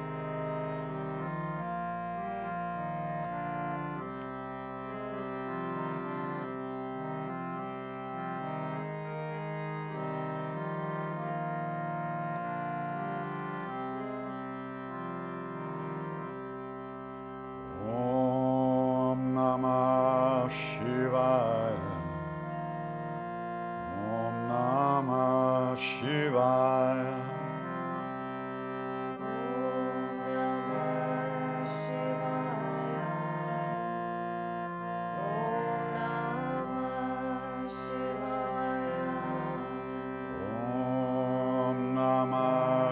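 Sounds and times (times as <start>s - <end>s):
harmonium chords: 0.0s - 42.9s
chanting: 17.8s - 22.4s, 23.8s - 28.1s, 29.1s - 42.9s.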